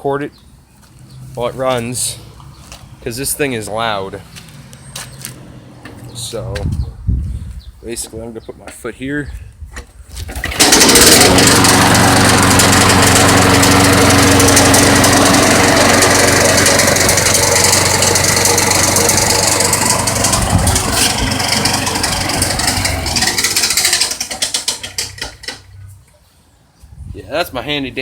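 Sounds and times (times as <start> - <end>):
lawn mower engine knocking: 10.3 - 25.7.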